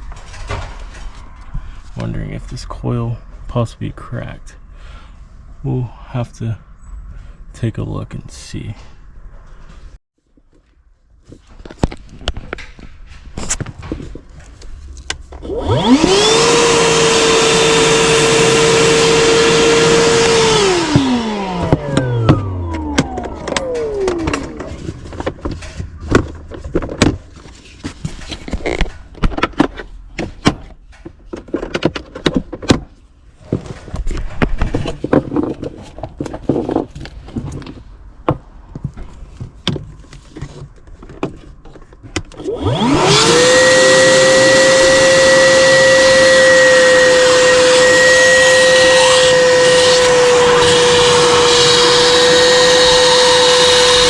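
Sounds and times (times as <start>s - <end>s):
shop vacuum motor running: 15.4s - 25.3s, 42.4s - 54.0s.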